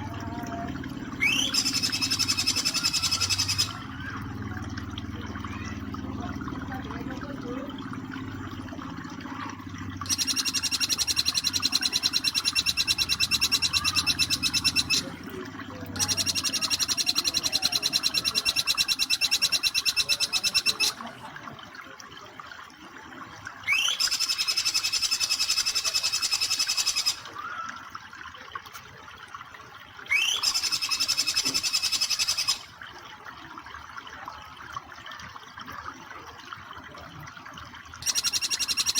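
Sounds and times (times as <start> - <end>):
running water: 0.0 - 38.9
bird fast trilling song: 1.2 - 3.8, 10.0 - 15.1, 16.0 - 21.0, 23.7 - 27.2, 30.1 - 32.6, 38.0 - 38.9.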